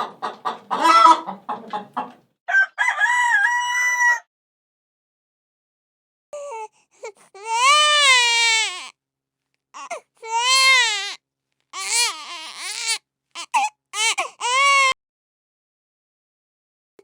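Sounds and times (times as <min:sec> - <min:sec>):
baby crying: 0:00.8 - 0:01.3, 0:06.4 - 0:08.9, 0:09.8 - 0:11.2, 0:11.8 - 0:15.0.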